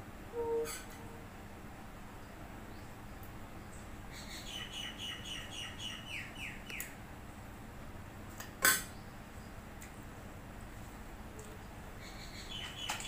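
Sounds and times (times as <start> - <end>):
bird chirping: 2.2 - 6.9, 12.0 - 13.0.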